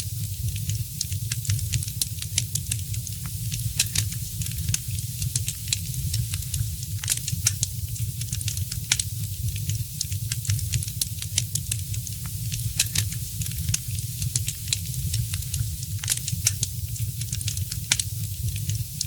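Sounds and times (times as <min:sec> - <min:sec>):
wood fire crackling and popping: 0:00.5 - 0:18.8.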